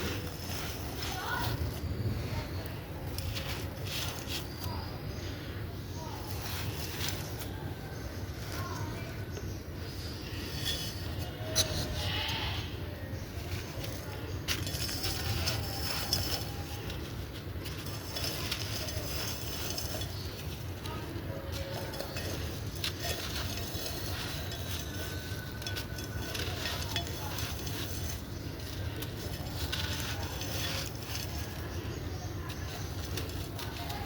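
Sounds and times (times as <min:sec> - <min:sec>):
crumbling dry cement chunks: 0:00.0 - 0:05.4, 0:13.0 - 0:34.0.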